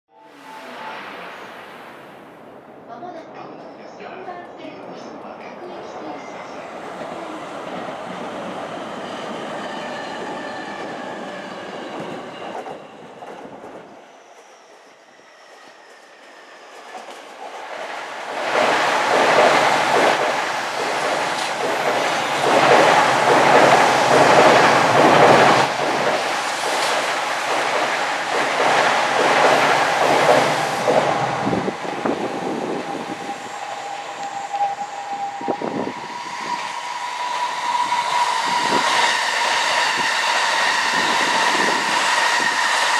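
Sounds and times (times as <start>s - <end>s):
steady whine: 0.1s - 6.2s
train rumble: 0.2s - 14.5s, 15.8s - 42.9s.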